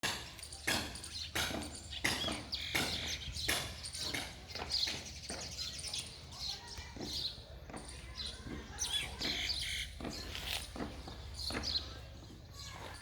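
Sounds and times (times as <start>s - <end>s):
footsteps walking: 10.0s - 13.0s.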